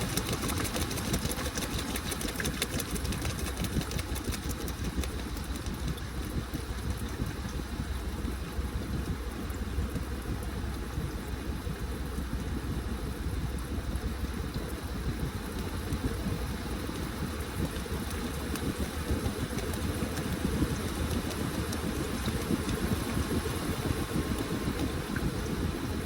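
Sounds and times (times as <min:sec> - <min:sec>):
water sloshing in drum: 0:00.0 - 0:10.7
washing machine motor hum: 0:00.0 - 0:26.0.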